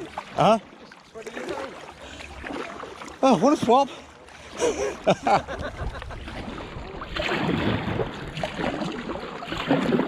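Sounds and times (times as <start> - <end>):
paddle strokes in water: 0.0 - 10.0
wind on microphone: 5.4 - 10.0.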